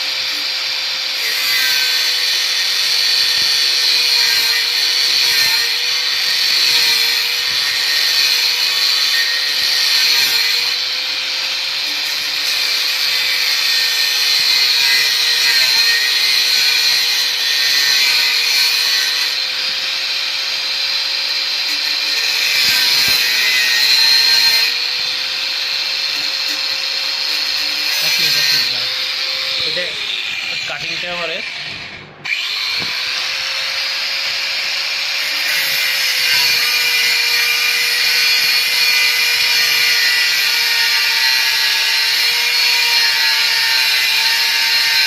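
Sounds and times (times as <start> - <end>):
angle grinder cutting steel: 0.0 - 45.0.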